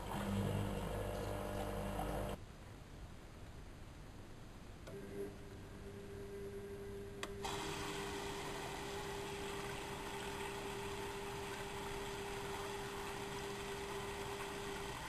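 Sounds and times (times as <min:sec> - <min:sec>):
washing machine hum: 0:00.0 - 0:02.4, 0:04.9 - 0:15.0
water rushing in: 0:07.4 - 0:15.0.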